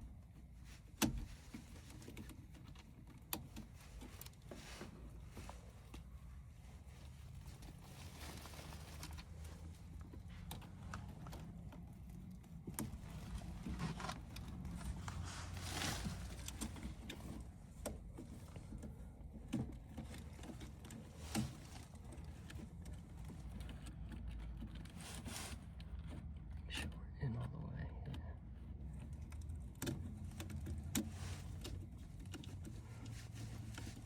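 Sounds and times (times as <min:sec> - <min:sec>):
brief rustle: 0:12.7 - 0:18.8.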